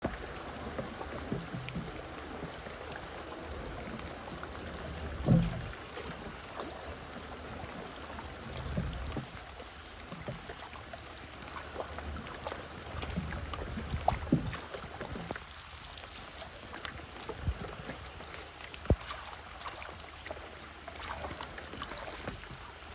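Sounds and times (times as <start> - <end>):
floodwater sloshing and trickling: 0.0 - 22.9
loud thump or splash: 5.2 - 5.7, 18.8 - 19.3
small knocks: 5.2 - 5.7.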